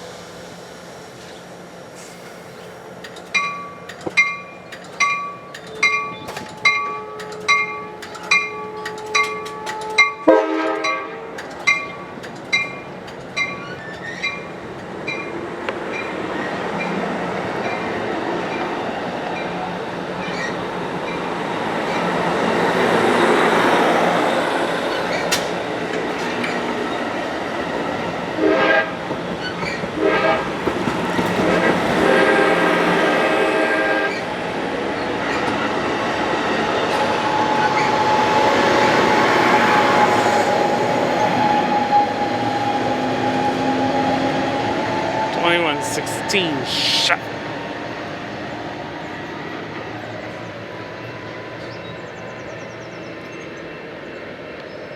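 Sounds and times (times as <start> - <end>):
train rumbling on rails: 0.0 - 54.9
train horn blasts: 9.5 - 11.4, 28.4 - 29.0, 30.0 - 30.5, 32.0 - 34.2.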